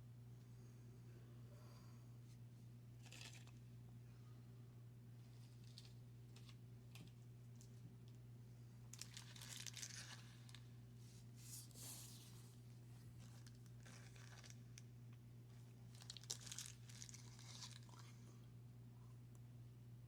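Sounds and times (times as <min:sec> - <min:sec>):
steady low hum: 0:00.0 - 0:20.0
paper wrapper tearing and crinkling: 0:09.0 - 0:10.6, 0:13.3 - 0:14.6, 0:15.9 - 0:18.1.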